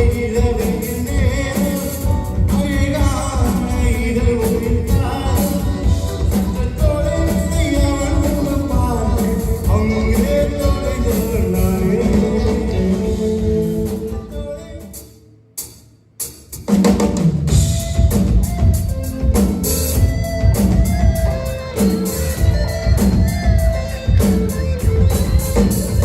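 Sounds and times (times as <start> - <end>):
live band playing: 0.0 - 26.0.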